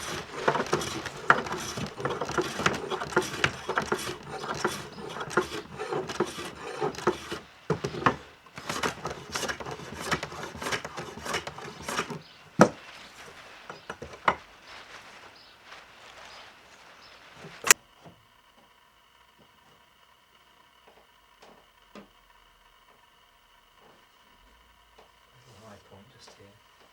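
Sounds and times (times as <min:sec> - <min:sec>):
sharp knocks on wood: 0:00.0 - 0:14.5
hand tools scraping wood: 0:00.0 - 0:17.8.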